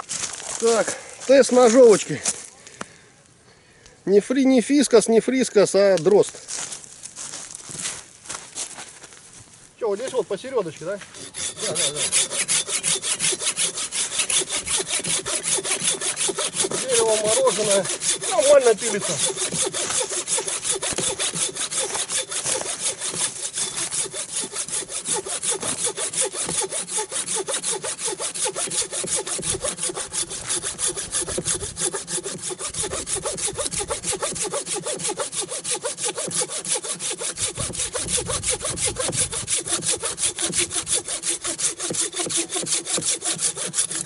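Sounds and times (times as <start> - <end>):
hand saw cutting wood: 10.0 - 44.0.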